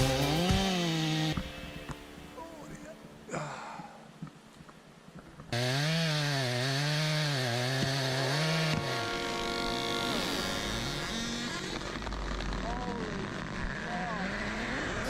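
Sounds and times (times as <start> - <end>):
chainsaw cutting: 0.0 - 2.2, 5.5 - 15.0.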